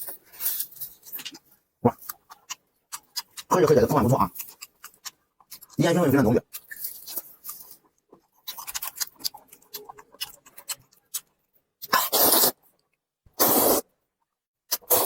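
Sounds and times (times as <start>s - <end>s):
wet chewing: 0.4s - 12.9s
loud short slurps: 11.9s - 12.6s, 13.4s - 13.8s, 14.7s - 15.0s.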